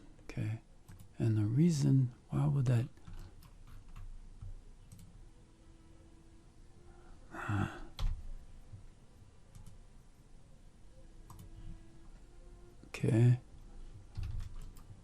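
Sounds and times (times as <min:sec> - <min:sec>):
computer mouse clicks: 0:00.9 - 0:01.1, 0:03.0 - 0:05.1, 0:09.5 - 0:09.8, 0:11.3 - 0:11.5, 0:14.1 - 0:15.0.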